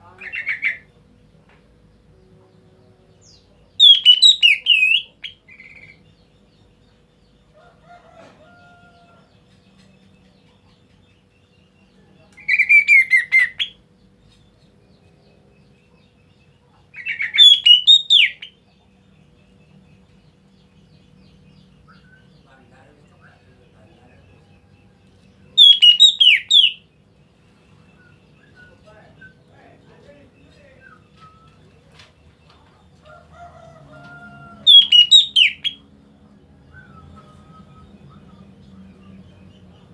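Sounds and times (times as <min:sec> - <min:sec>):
bird whistling calls: 0:03.8 - 0:05.9, 0:17.0 - 0:18.6, 0:25.6 - 0:26.9, 0:34.6 - 0:35.8.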